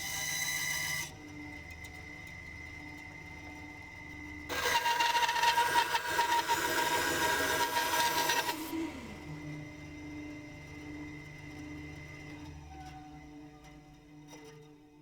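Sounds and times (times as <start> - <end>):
bandsaw cutting wood: 4.5 - 9.1
bandsaw running hum: 4.5 - 9.7.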